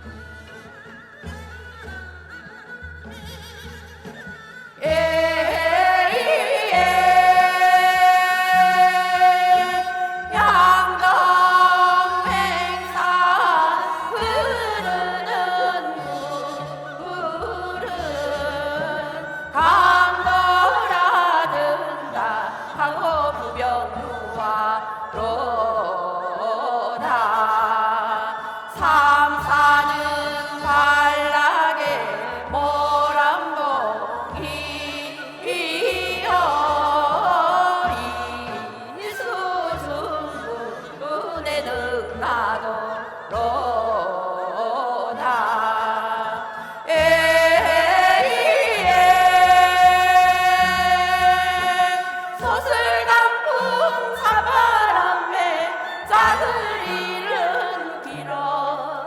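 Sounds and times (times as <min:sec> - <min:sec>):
instrumental accompaniment: 0:00.0 - 0:25.4
person singing folk song: 0:04.8 - 0:59.0.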